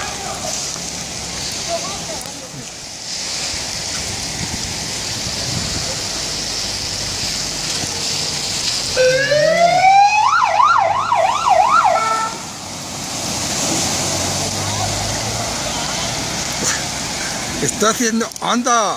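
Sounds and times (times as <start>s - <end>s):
heavy rain hissing: 0.0s - 18.9s
electronic siren wailing: 9.0s - 12.4s.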